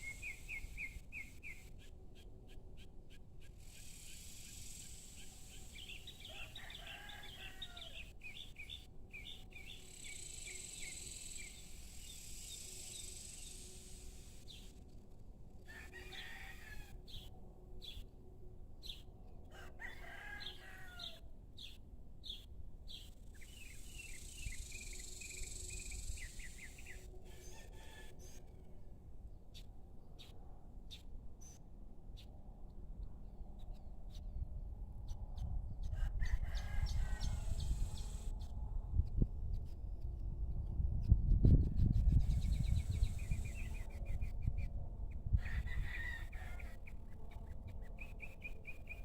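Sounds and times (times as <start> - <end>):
rooster crowing faintly: 15.7 - 17.0.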